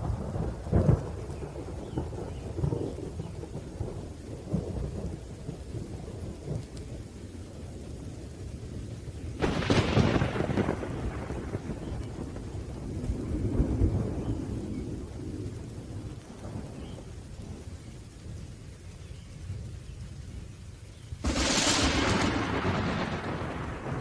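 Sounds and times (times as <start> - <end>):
low thunder rumble: 0.0 - 24.0
rain: 0.0 - 24.0
sharp thunderclap: 9.4 - 14.8, 21.2 - 24.0.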